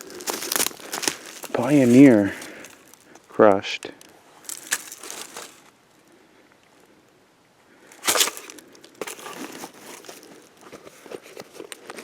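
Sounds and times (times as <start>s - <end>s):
footsteps crunching dry leaves: 0.0s - 3.3s, 4.4s - 5.7s, 8.0s - 11.1s.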